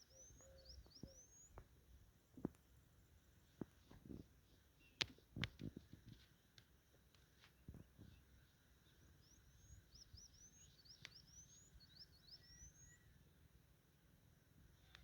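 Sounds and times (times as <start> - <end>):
faint songbird high notes: 0.0 - 1.6, 8.1 - 13.3.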